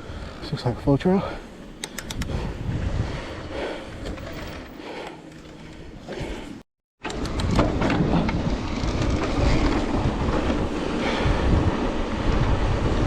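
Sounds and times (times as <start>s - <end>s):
wind rushing over microphone: 2.0s - 4.6s, 7.1s - 13.0s.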